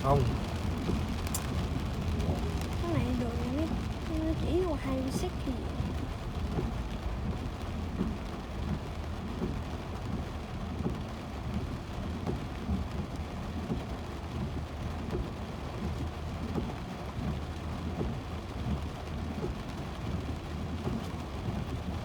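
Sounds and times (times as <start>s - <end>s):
rain hissing on car: 0.0s - 22.0s
tyres rumbling on wet road: 0.0s - 22.0s.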